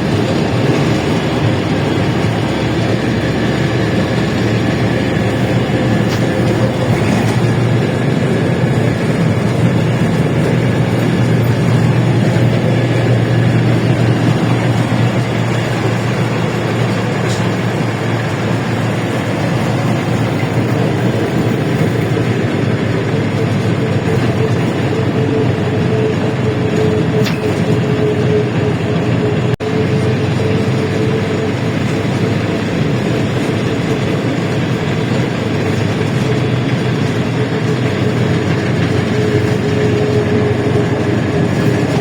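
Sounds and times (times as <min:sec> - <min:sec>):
bus engine drone: 0:00.0 - 0:42.0
high whine: 0:00.0 - 0:42.0
road and body noise: 0:00.0 - 0:42.0.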